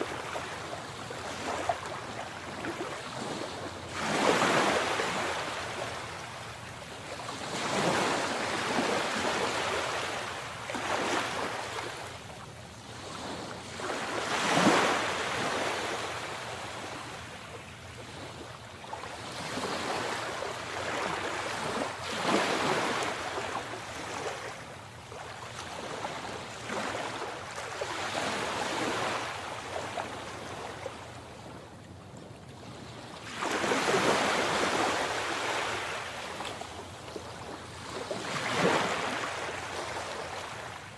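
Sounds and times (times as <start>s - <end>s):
sea waves breaking on shore: 0.0s - 40.9s.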